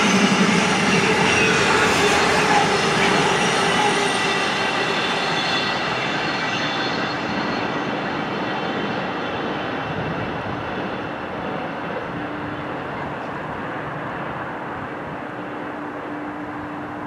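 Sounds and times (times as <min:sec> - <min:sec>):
freight train wheels on rails: 0:00.0 - 0:17.0
faint wheel squeal: 0:00.8 - 0:08.8.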